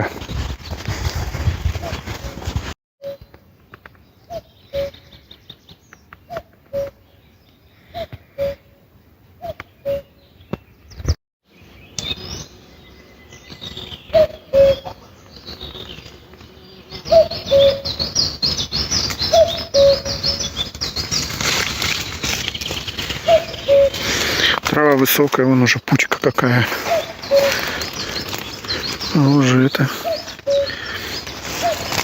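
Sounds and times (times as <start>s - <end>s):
footsteps through tall grass: 0.0s - 2.8s, 20.4s - 25.2s, 26.6s - 32.0s
cuckoo calling: 3.0s - 5.5s, 6.1s - 7.2s, 7.8s - 8.8s, 9.4s - 10.3s, 11.8s - 16.0s, 17.0s - 24.6s, 25.9s - 32.0s
songbirds chirping faintly: 3.0s - 32.0s.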